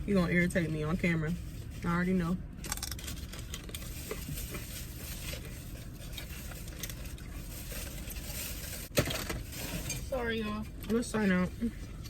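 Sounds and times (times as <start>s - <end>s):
low rumble in car cabin: 0.0s - 12.0s
food packaging rustling: 2.7s - 10.2s.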